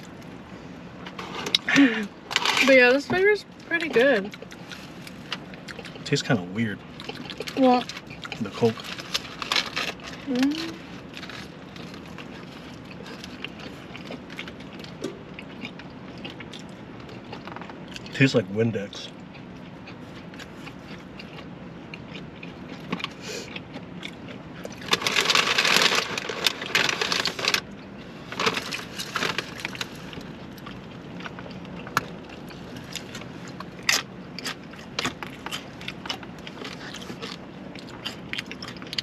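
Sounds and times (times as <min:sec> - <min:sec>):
steady low hum: 0:00.0 - 0:39.0
wrapper crinkling: 0:08.6 - 0:12.2, 0:24.8 - 0:27.6, 0:28.3 - 0:30.3.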